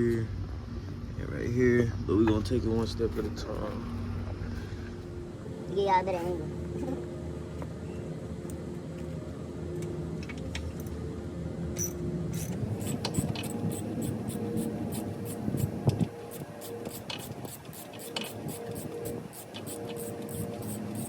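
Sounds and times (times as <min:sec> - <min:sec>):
steady low hum: 0:00.0 - 0:21.0
hand ratchet clicking: 0:12.4 - 0:21.0.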